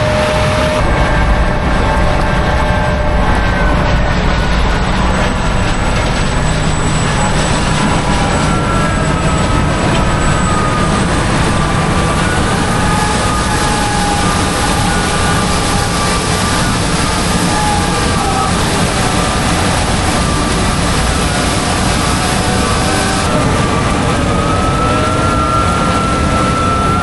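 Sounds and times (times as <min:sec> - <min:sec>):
faint falling whines: 0:00.0 - 0:27.0
heavy harvest machinery running: 0:00.0 - 0:27.0.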